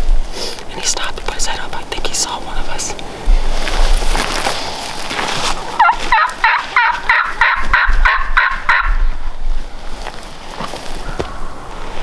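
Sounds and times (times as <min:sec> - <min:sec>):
turkey gobbling: 0:05.3 - 0:09.3.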